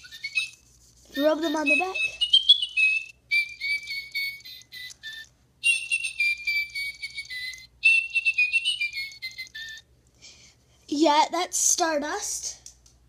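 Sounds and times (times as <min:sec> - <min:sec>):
toy bird chirping: 0:00.0 - 0:09.9.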